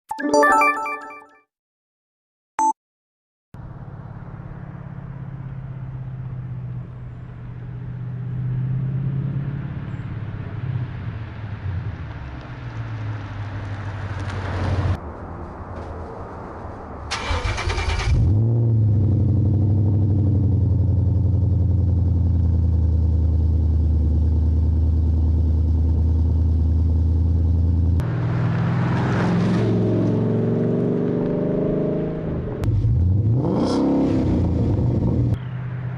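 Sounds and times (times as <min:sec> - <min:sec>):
car engine exhaust rumble: 0:18.0 - 0:28.4, 0:32.0 - 0:35.9
car engine revving: 0:27.1 - 0:35.4.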